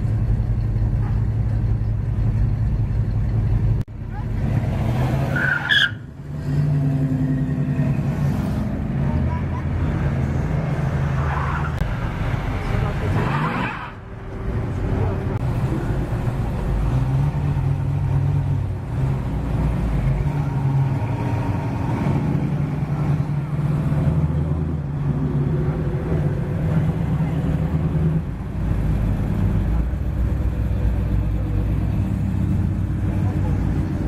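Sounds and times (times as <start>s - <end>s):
car engines rolling past slowly: 0.0s - 34.0s.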